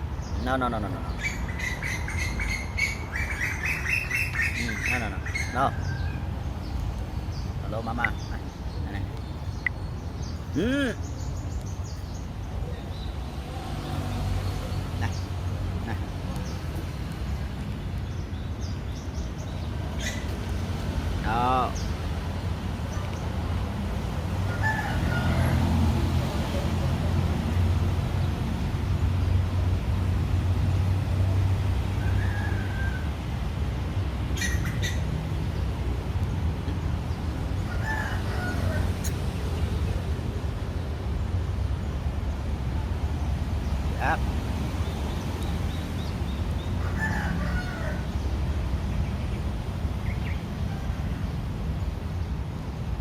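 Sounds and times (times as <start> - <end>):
rooster crowing: 24.4 - 26.2, 32.0 - 33.2, 37.6 - 39.1, 46.8 - 48.2.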